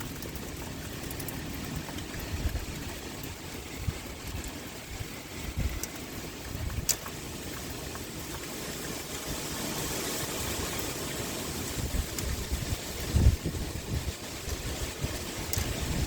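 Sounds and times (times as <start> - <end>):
sharp drip clicks: 0.0 - 9.3, 12.0 - 13.0, 15.2 - 16.0
pouring rain: 0.0 - 16.0
wind gusting: 11.6 - 16.0.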